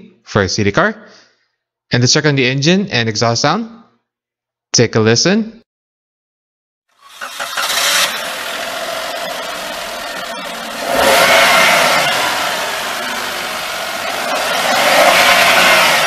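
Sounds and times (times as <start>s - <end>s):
car engine starting and revving: 7.0s - 16.0s.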